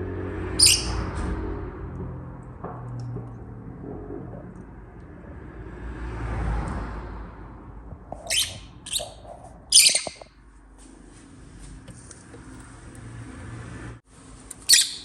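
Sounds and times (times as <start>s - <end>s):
lovebird shrill chirps: 0.6s - 1.0s, 8.2s - 10.3s, 14.6s - 15.0s.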